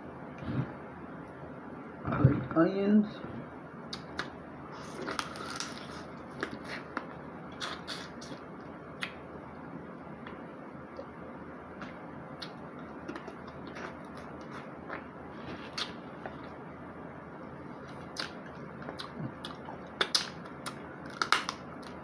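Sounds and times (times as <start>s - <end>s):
steady low hiss: 0.0s - 22.0s
crab shell cracking: 20.0s - 22.0s.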